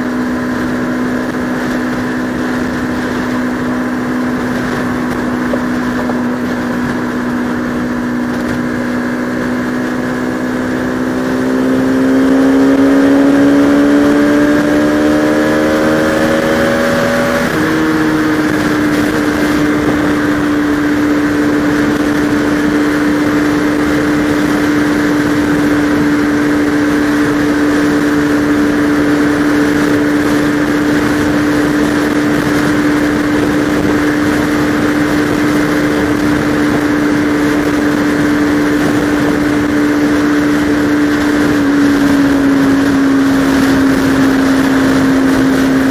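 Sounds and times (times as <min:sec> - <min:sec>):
motorcycle engine accelerating: 0:00.0 - 0:45.9
steady rush of noise: 0:00.0 - 0:45.9.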